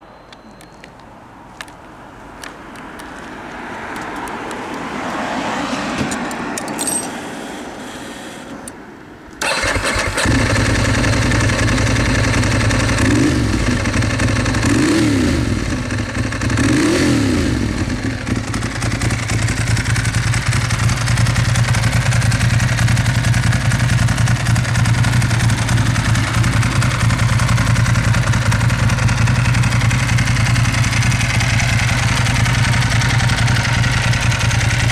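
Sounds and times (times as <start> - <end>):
motorcycle engine revving and idling: 9.4 - 34.9.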